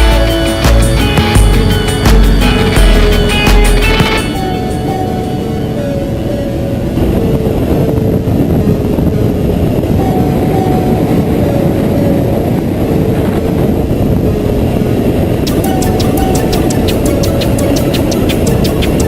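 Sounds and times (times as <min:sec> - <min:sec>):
motorcycle engine running: 0:00.0 - 0:04.3
riding noise: 0:00.0 - 0:19.0.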